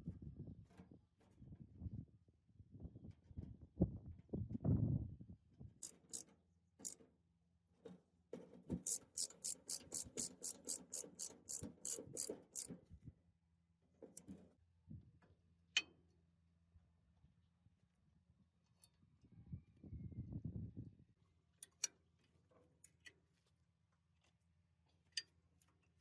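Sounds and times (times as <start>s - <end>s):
rapid mechanical clicking: 8.8s - 12.7s.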